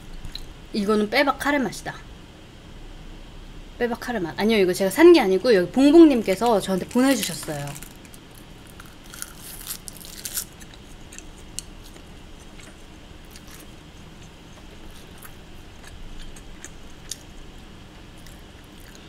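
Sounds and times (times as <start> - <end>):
low room hum: 0.0 - 19.0
chewing crisp seaweed: 6.3 - 19.0.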